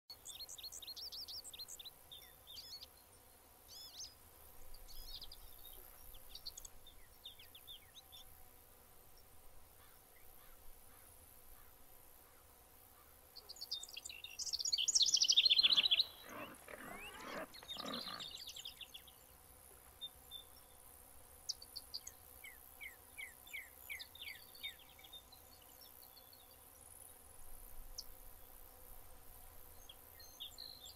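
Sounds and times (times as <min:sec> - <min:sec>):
small birds chirping: 0:13.4 - 0:20.8
rough animal call: 0:15.4 - 0:18.4.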